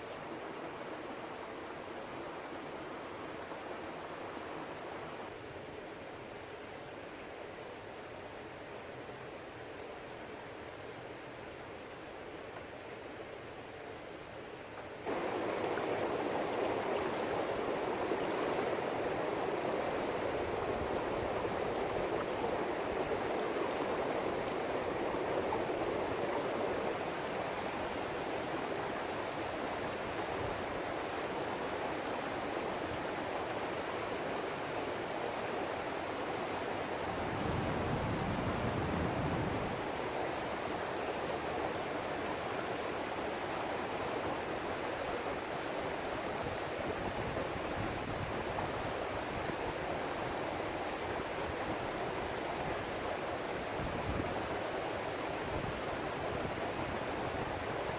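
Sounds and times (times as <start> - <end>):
rocky river rushing: 15.1 - 57.9.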